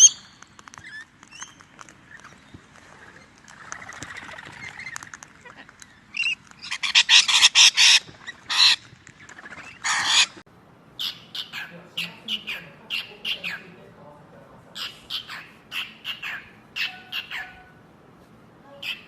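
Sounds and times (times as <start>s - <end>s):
parrot squawking: 4.1s - 10.4s, 11.0s - 13.8s, 14.8s - 17.8s, 18.8s - 19.0s.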